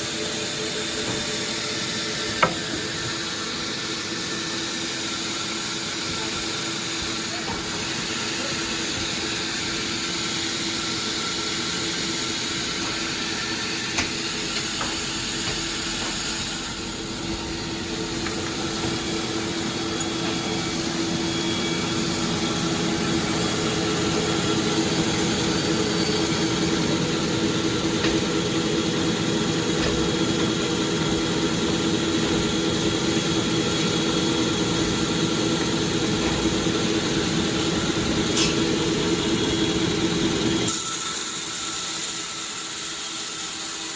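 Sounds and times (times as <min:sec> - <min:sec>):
sawmill machinery humming: 0:00.0 - 0:43.9.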